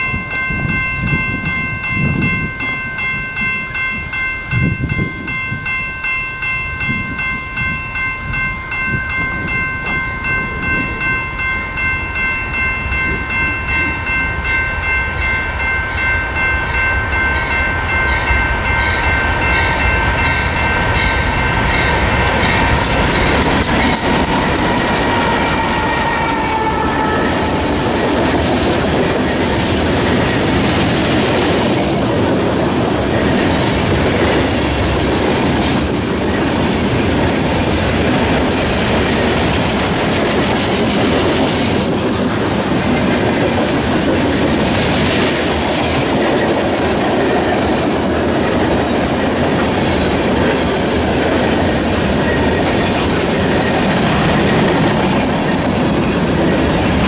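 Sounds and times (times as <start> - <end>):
train wheels clattering on rails: 6.8 - 57.0
locomotive engines rumbling: 7.5 - 57.0
locomotive horn chord: 23.9 - 27.7.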